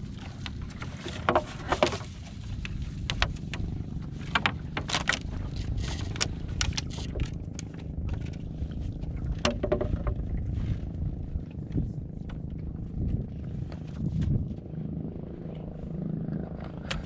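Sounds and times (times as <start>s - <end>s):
clicks and knocks of gillnet: 0.0s - 10.4s
boat engine rumbling: 0.0s - 17.0s.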